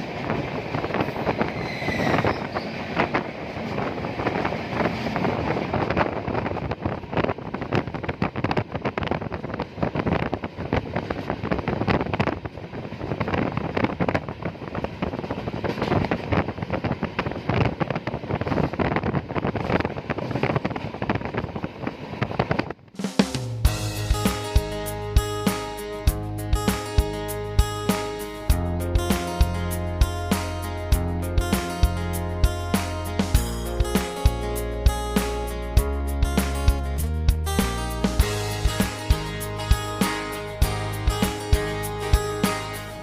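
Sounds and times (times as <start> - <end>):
wind buffeting microphone: 0.0 - 22.9
train running noise: 0.0 - 43.0
music: 23.0 - 43.0.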